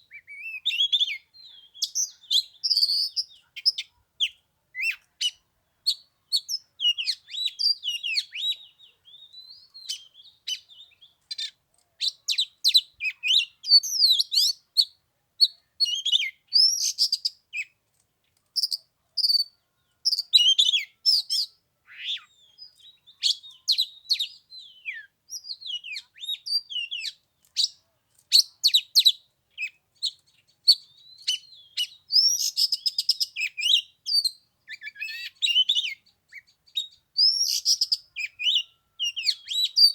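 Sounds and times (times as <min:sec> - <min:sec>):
bird singing whistles and trills: 0:00.0 - 0:17.7, 0:20.1 - 0:39.9.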